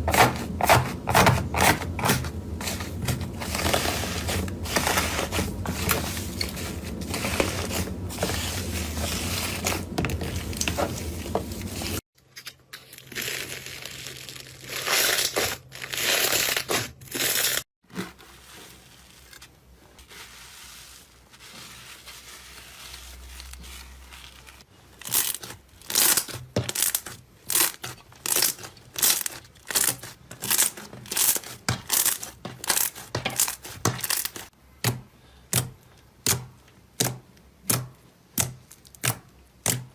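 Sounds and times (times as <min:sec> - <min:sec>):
slime squelching: 0:00.0 - 0:12.0.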